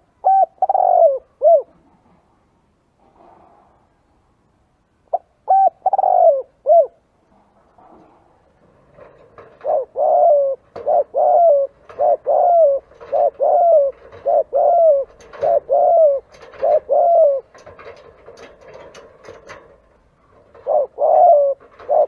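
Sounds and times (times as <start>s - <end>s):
dove cooing: 0.0s - 1.9s, 5.1s - 7.0s, 9.1s - 19.7s, 20.4s - 22.0s.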